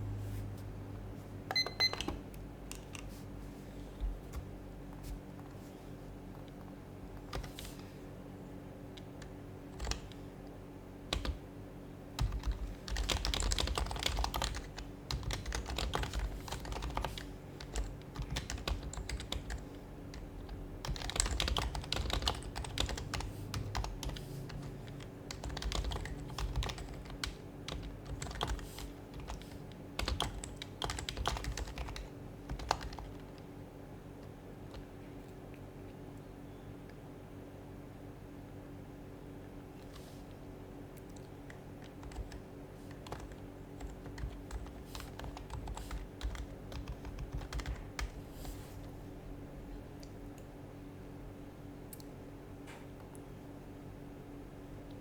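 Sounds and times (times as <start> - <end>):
faint steady hum: 0.0 - 55.0
keyboard typing: 6.4 - 7.7, 8.9 - 10.2, 12.2 - 33.4, 41.0 - 48.2.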